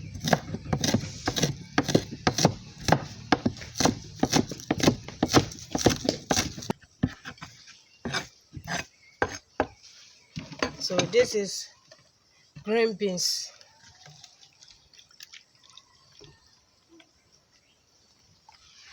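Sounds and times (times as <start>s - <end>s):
knife chopping vegetables: 0.1s - 7.4s, 8.1s - 9.7s.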